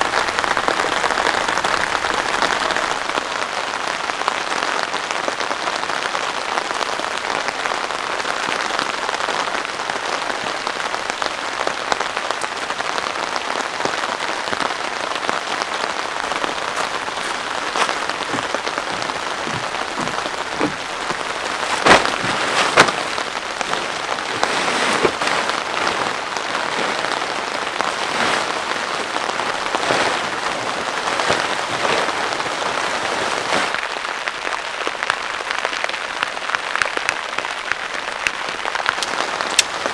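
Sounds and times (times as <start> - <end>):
raindrops striking: 14.6 - 33.8, 38.3 - 39.9
heavy rain hissing: 15.6 - 33.8.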